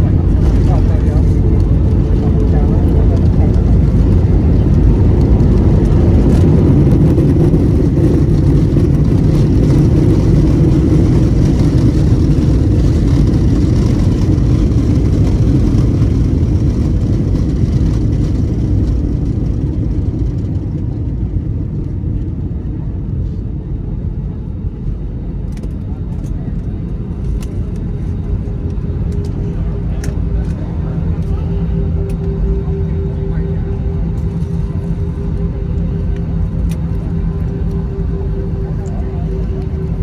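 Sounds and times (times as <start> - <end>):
jet engine rumble in cabin: 0.0 - 40.0.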